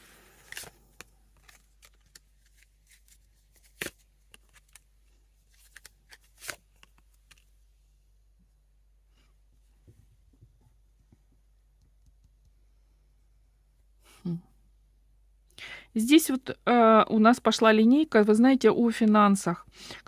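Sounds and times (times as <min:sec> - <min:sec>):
cards clicking and flicking: 0:00.4 - 0:04.8, 0:05.6 - 0:07.4.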